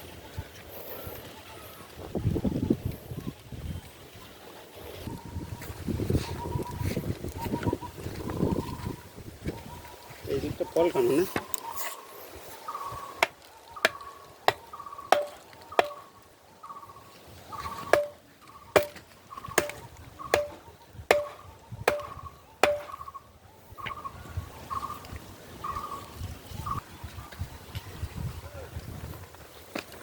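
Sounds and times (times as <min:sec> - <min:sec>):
hand tool chopping: 0:13.2 - 0:16.0, 0:17.8 - 0:18.2, 0:18.8 - 0:19.0, 0:19.6 - 0:23.0.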